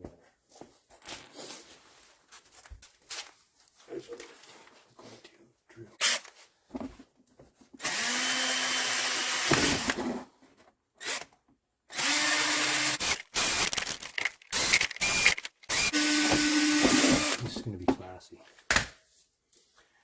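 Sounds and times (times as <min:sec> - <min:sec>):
power drill drilling: 0:07.8 - 0:10.1, 0:11.9 - 0:17.5.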